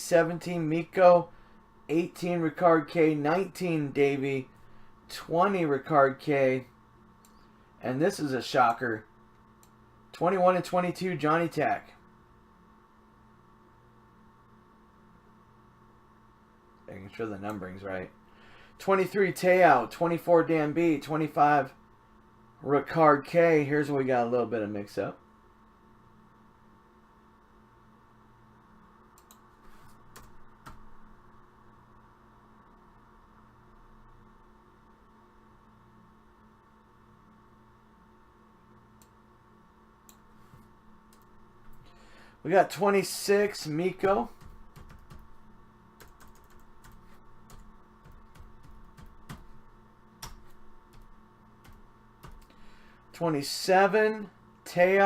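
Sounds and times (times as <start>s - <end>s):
faint electrical hum: 0.0s - 55.0s
computer keyboard clicks: 44.4s - 45.3s, 46.0s - 49.5s, 50.2s - 52.5s.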